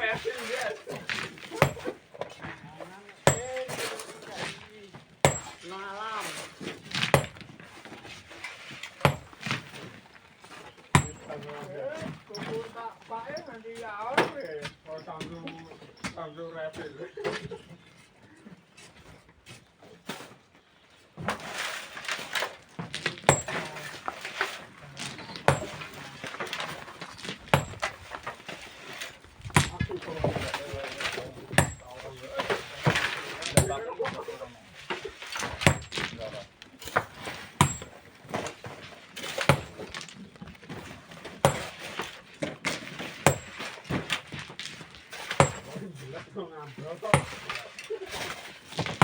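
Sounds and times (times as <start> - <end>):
tools scraping sand and stone: 0.0 - 49.0
metal striking stone: 3.2 - 4.1, 5.2 - 5.6, 9.0 - 9.6, 10.9 - 11.4, 23.2 - 24.6, 25.3 - 33.9, 35.3 - 36.2, 36.8 - 38.5, 39.2 - 39.9, 41.4 - 42.0, 43.2 - 44.0, 45.2 - 45.8, 47.1 - 47.6.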